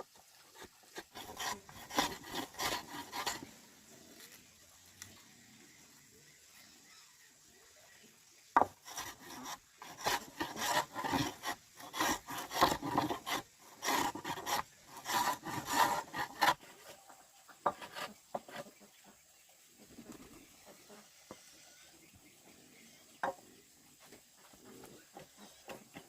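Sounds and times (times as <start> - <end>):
rough scraping strokes: 0.0 - 4.5, 8.6 - 18.8.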